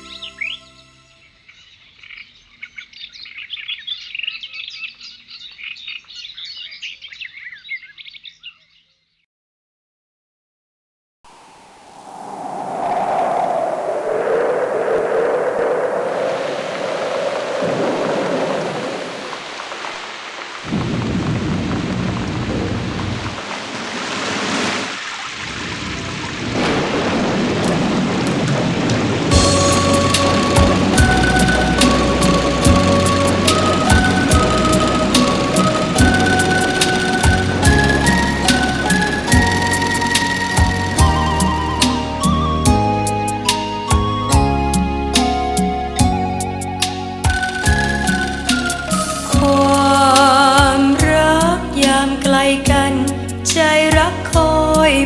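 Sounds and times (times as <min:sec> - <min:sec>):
small birds chirping and twittering: 0:00.0 - 0:09.2, 0:29.3 - 0:42.4
thunder rumbling: 0:11.6 - 0:19.2, 0:20.6 - 0:23.6, 0:25.6 - 0:42.8
steady rain falling: 0:13.0 - 0:42.6, 0:47.2 - 0:52.8.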